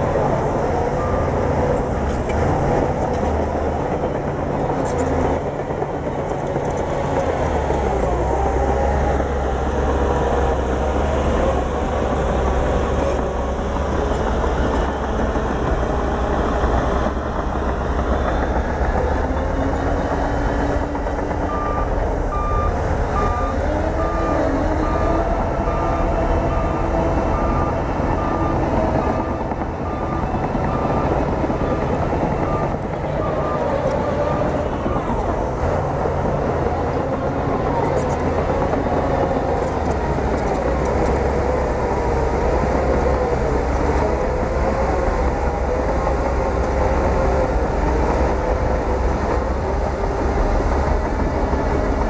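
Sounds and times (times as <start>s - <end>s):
bulldozer diesel engine running: 0.0s - 52.0s
reversing alarm beeping: 0.7s - 1.7s, 21.4s - 35.2s.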